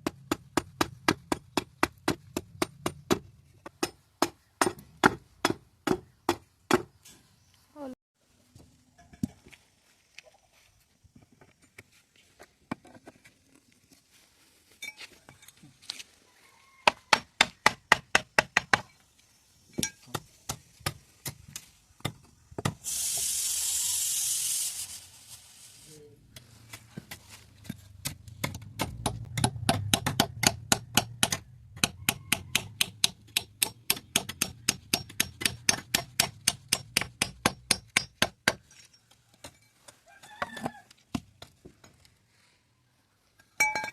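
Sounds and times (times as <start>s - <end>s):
steady hiss: 22.7s - 26.2s.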